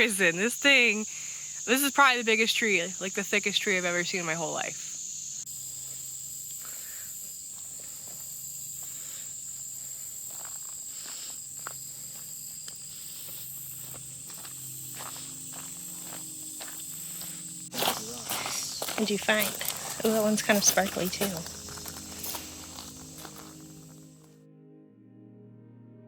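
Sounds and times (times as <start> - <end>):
insects droning high-pitched: 0.0 - 24.2
footsteps on trail: 5.6 - 24.2.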